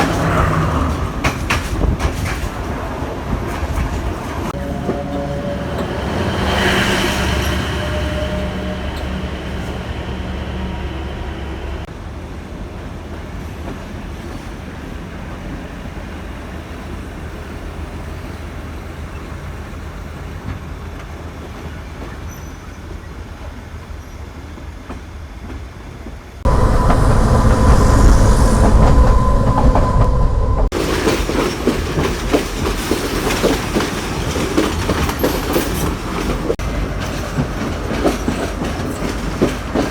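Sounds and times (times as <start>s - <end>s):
trains running on rails: 0.0s - 39.9s
steady tone: 4.6s - 11.9s, 26.4s - 30.8s.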